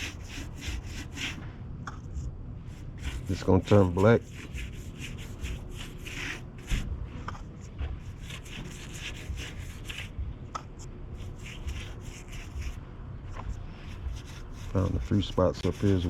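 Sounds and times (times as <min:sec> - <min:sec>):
brush scrubbing sheet metal: 0:00.0 - 0:01.4, 0:02.7 - 0:06.9, 0:08.0 - 0:10.2, 0:11.2 - 0:12.8, 0:13.8 - 0:16.0.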